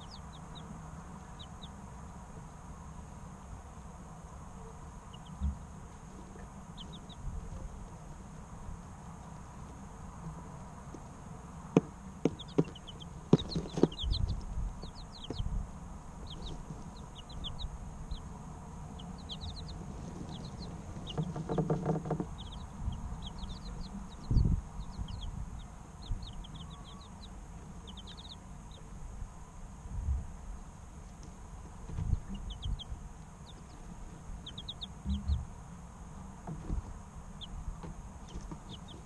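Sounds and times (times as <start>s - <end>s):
chicks peeping: 0.0s - 30.0s, 31.0s - 39.0s
sharp knocks: 11.8s - 14.2s, 21.1s - 22.6s
low scuffles and thumps: 31.8s - 32.4s.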